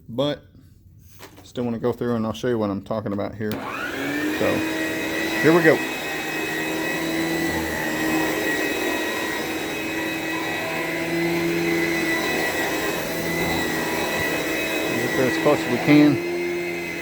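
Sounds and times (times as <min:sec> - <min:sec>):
vacuum cleaner whining: 0:03.5 - 0:17.0.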